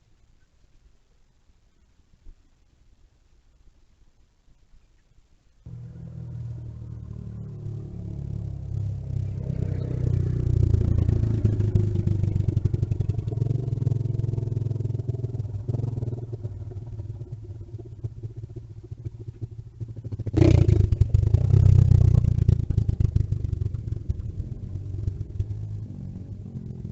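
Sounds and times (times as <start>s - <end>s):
mini bike engine running: 5.7s - 26.9s.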